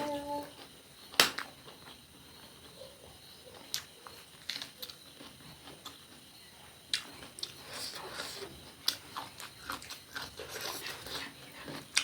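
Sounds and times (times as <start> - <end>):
person chewing food: 3.5 - 6.3, 6.9 - 12.0.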